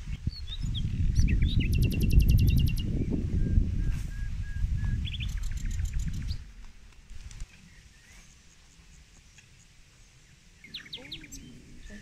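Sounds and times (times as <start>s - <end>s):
low rumble on microphone: 0.0s - 7.5s
small birds chirping: 0.0s - 12.0s.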